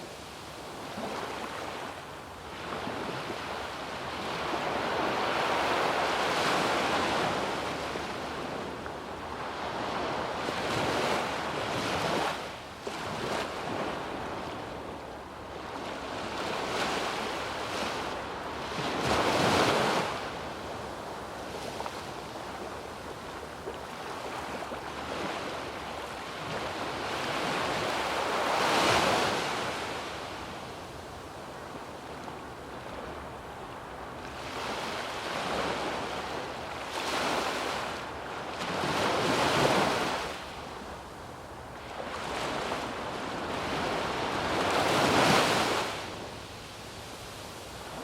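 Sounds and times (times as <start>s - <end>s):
sea waves breaking on beach: 34.0s - 40.9s, 41.7s - 48.0s.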